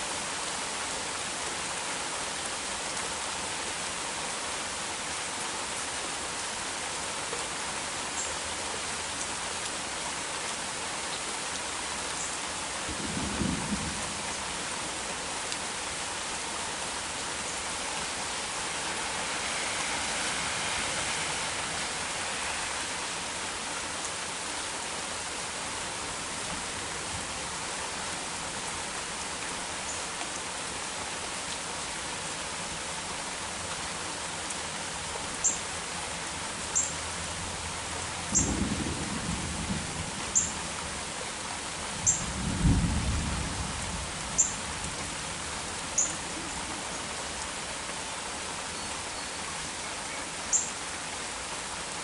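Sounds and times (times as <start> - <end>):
heavy rain: 0.0 - 52.0.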